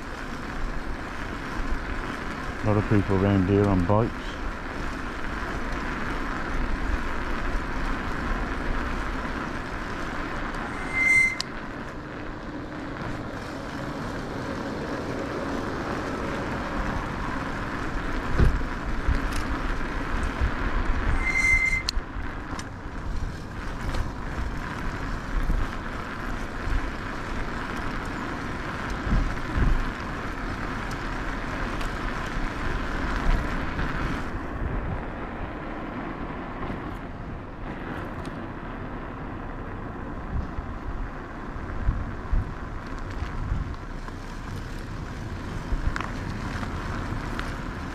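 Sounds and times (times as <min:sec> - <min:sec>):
e-bike riding noise: 0:00.0 - 0:47.9
wind rumbling on microphone: 0:00.0 - 0:47.9
short high tones: 0:10.6 - 0:11.6, 0:21.1 - 0:21.9.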